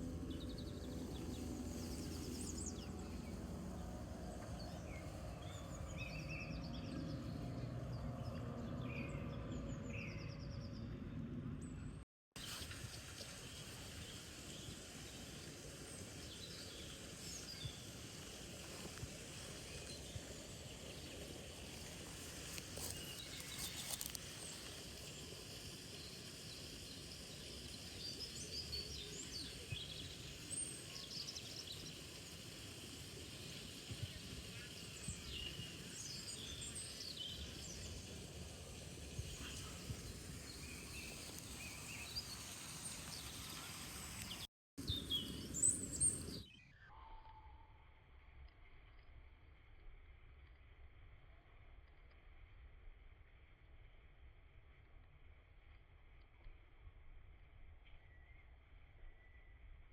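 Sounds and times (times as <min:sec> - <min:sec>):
outdoor ambience hiss: 0:00.0 - 0:08.0, 0:11.6 - 0:47.0
small birds chirping: 0:00.0 - 0:10.9, 0:12.4 - 0:47.0.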